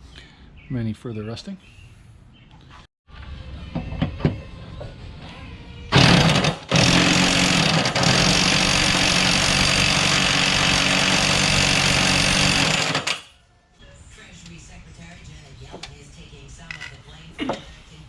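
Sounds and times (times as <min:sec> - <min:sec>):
mower engine running: 0:05.9 - 0:13.2.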